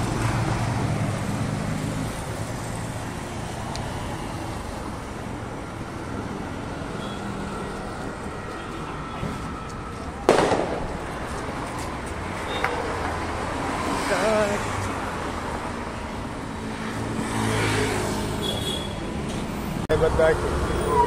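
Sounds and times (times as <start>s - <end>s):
street traffic noise: 0.0s - 21.0s
sharp loud bang: 10.2s - 11.2s.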